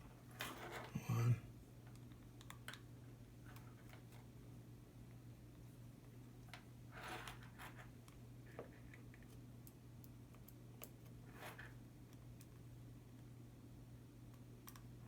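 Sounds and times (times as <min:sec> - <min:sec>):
steady low hum: 0:00.9 - 0:01.6.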